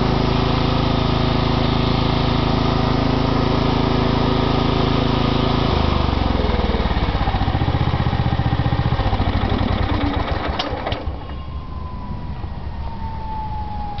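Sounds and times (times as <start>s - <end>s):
lawn mower engine running: 0.0s - 14.0s
faint falling whine: 11.0s - 14.0s.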